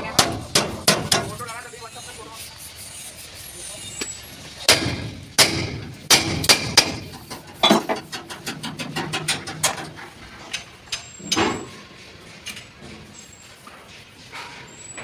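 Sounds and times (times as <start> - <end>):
hammer beating sheet metal: 0.1 - 1.4, 4.7 - 9.9.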